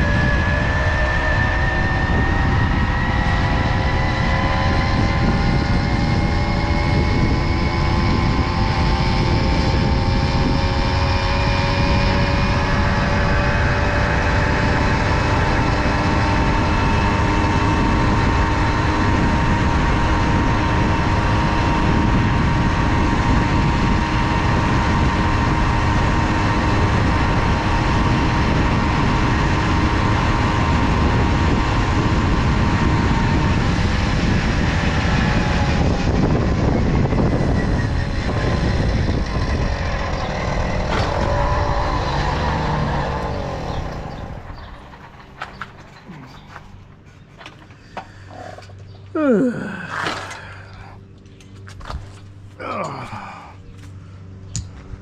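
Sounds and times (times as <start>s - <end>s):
moped two-stroke engine running: 3.5s - 51.6s
low rumble: 17.6s - 55.0s.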